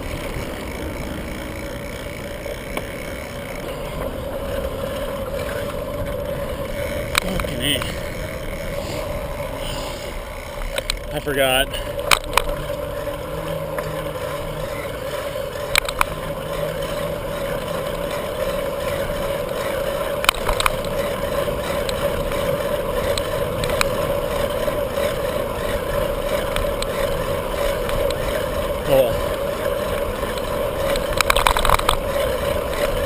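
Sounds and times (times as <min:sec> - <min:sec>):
bicycle tyre noise: 0:00.0 - 0:33.0
held hum: 0:00.0 - 0:33.0
sharp clicks and knocks: 0:10.6 - 0:11.3, 0:12.0 - 0:14.1, 0:15.6 - 0:16.3, 0:20.2 - 0:21.0, 0:23.1 - 0:24.0, 0:30.3 - 0:32.1.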